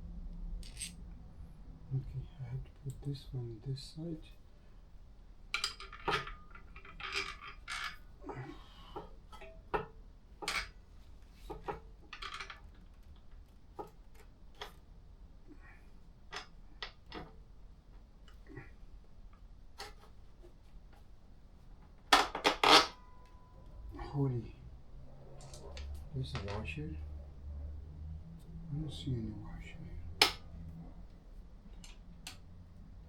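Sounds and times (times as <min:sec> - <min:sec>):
metal hardware clicks and clinks: 0:00.6 - 0:01.0, 0:05.6 - 0:08.0, 0:25.3 - 0:26.7.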